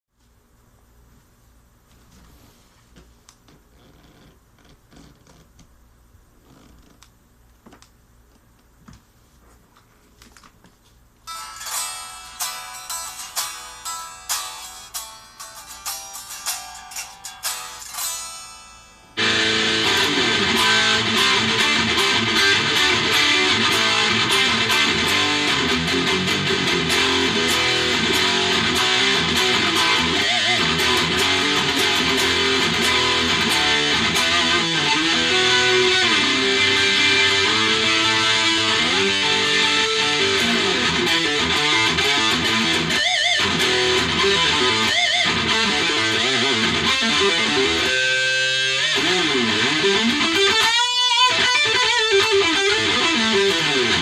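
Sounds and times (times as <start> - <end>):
electric guitar playing: 11.2 - 54.0.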